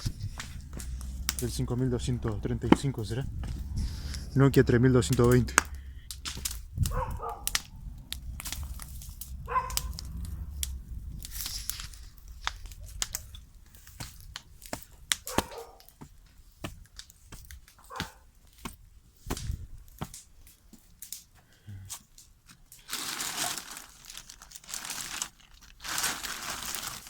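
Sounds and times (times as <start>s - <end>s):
dog barking: 6.9s - 7.8s, 9.4s - 10.2s, 15.2s - 15.9s, 17.8s - 18.2s.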